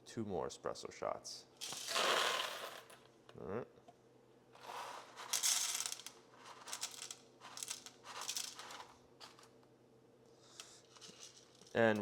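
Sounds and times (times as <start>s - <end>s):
coffee beans rattling: 1.6s - 3.0s, 4.6s - 9.5s, 10.6s - 12.0s.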